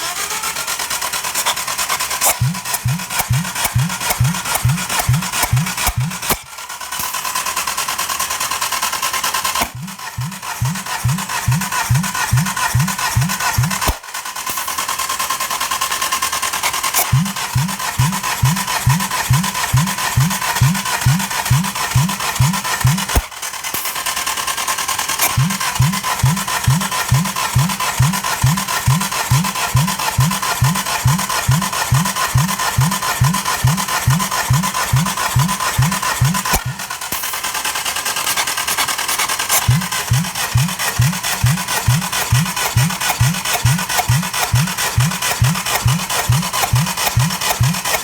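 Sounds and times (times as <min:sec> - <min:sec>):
engine cranking on starter: 0:00.0 - 0:48.0.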